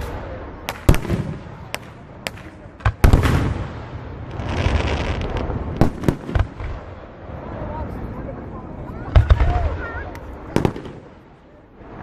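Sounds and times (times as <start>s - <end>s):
firework bangs: 0.0s - 7.1s, 10.5s - 11.3s
firework crackling: 0.0s - 8.0s, 9.1s - 12.0s.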